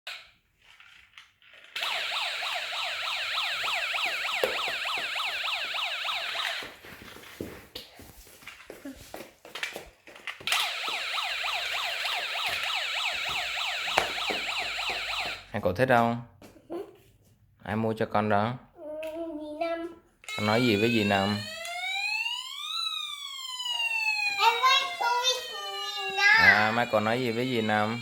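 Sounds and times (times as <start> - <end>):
toy police siren wailing: 1.8 - 6.7, 10.5 - 15.5, 20.3 - 28.0.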